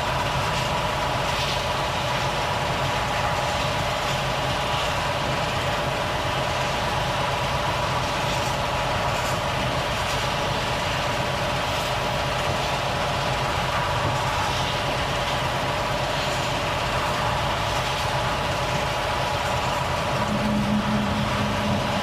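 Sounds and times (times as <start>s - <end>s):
truck diesel engine running: 0.0s - 22.0s
low steady tone: 20.2s - 22.0s.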